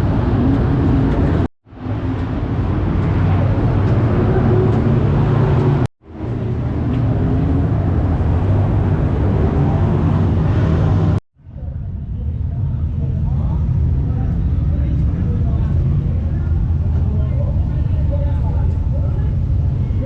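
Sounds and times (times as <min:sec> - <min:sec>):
race car engines running: 0:00.0 - 0:20.0.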